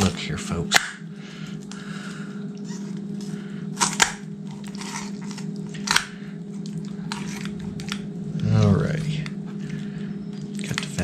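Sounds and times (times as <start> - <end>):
steady low hum: 0.0 - 11.0
bones snapping: 0.7 - 1.0, 3.2 - 8.1
shears crunching through bones: 2.6 - 11.0.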